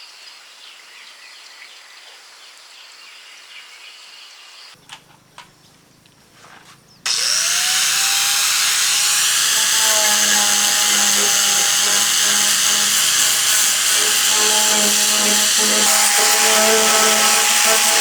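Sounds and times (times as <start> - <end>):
steady outdoor hum: 4.8 - 18.0
power tool whining: 7.1 - 18.0.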